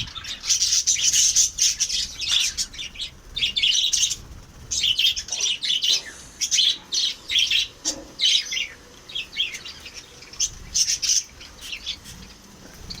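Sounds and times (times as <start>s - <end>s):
lovebirds chirping: 0.0s - 13.0s.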